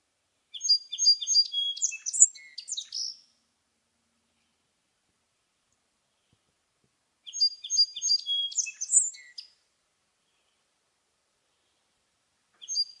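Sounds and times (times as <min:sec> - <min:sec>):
songbird singing: 0:00.4 - 0:03.5, 0:07.2 - 0:10.8, 0:11.4 - 0:13.0.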